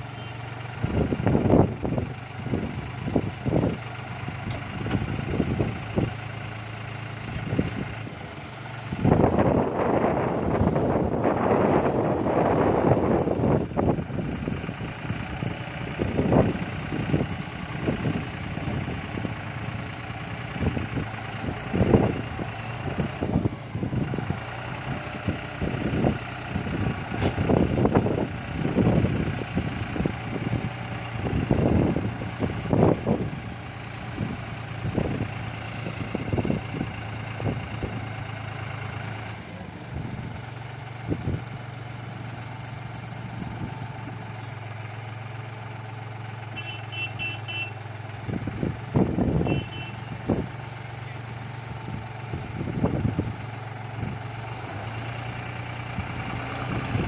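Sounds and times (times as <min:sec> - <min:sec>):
tractor engine running: 0:00.0 - 0:57.0
low thumps and rumbles: 0:00.7 - 0:06.3, 0:08.8 - 0:38.3, 0:39.9 - 0:44.3, 0:51.3 - 0:55.0.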